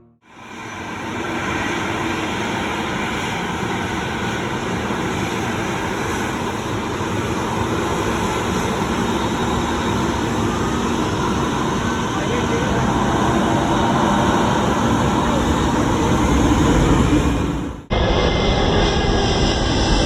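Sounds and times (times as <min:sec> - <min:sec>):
faint engine whine: 0:00.0 - 0:20.0
jet engines roaring: 0:00.2 - 0:20.0.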